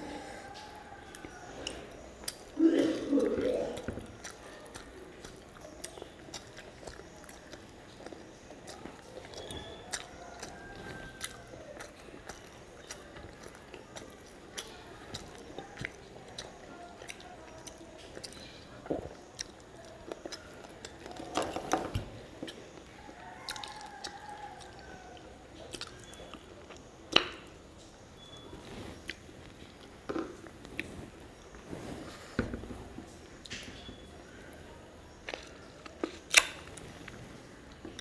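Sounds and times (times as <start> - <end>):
person chewing wetly: 0.0 - 31.7, 32.8 - 38.0
mouth clicks and smacks: 25.6 - 28.0, 35.2 - 36.8.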